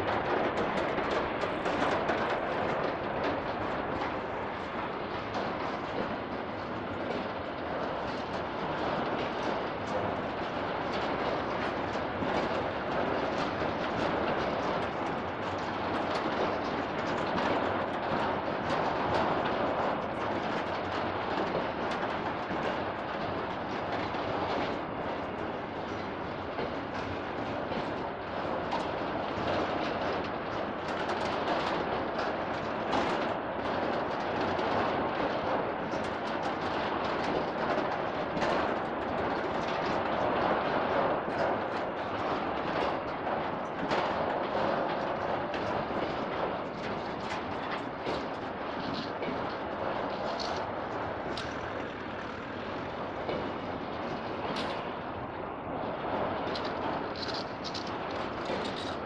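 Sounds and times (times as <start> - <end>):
freight wagons rumbling past: 47.9 - 55.1.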